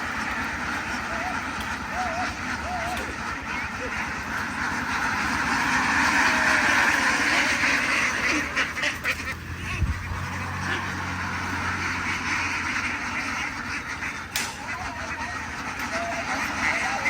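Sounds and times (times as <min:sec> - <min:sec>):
ducks quacking: 0:00.0 - 0:17.0
low steady hum: 0:00.0 - 0:17.0.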